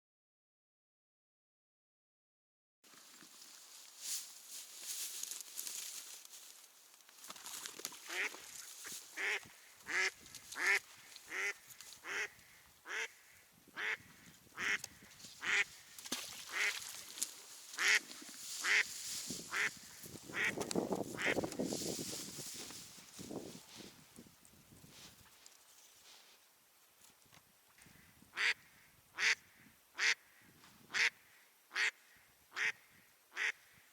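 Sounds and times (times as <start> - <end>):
duck quacking: 8.1 - 8.4, 9.1 - 15.8, 16.5 - 16.8, 17.8 - 18.0, 18.6 - 18.8, 19.5 - 19.7, 20.3 - 20.6, 27.9 - 33.8.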